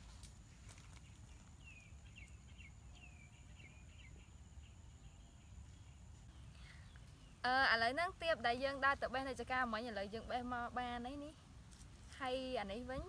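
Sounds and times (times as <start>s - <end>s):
bird chirping: 0.6s - 10.3s.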